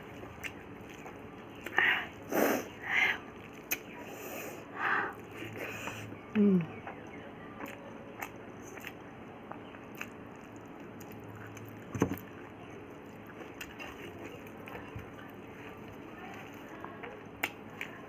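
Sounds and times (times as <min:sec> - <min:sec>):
person chewing food: 0:00.0 - 0:04.0, 0:05.1 - 0:18.0.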